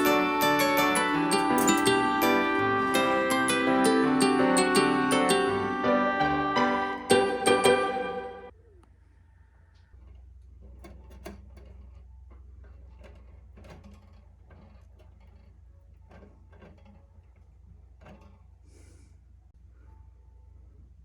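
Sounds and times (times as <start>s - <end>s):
small parts clicking and knocking: 9.8s - 18.6s.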